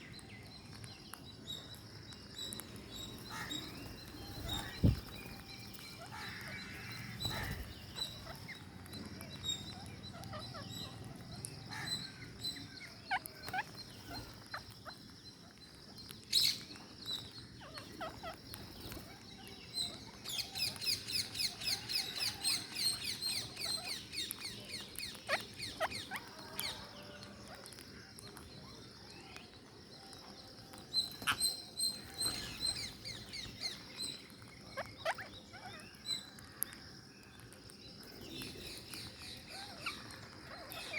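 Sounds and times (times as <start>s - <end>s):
parakeets feeding clicks and crunches: 0.0s - 40.9s
parakeets high chattering calls: 3.0s - 15.6s, 17.4s - 24.3s, 25.0s - 27.9s, 31.0s - 36.6s, 38.4s - 40.9s.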